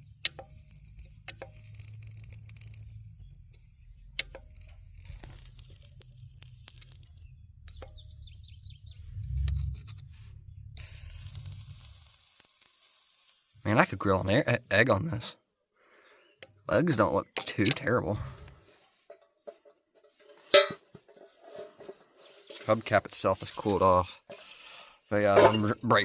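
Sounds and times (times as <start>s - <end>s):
hot wheel hub sizzling: 0.0s - 14.8s
low rumble: 8.5s - 12.0s.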